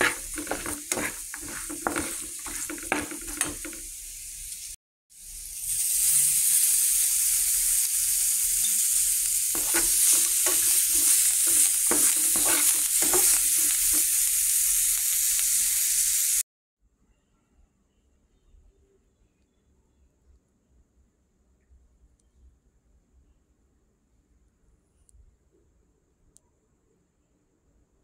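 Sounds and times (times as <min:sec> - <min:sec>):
spatula scraping a pan: 0:00.0 - 0:03.9, 0:09.6 - 0:14.3
chicken sizzling in a pan: 0:00.0 - 0:16.4.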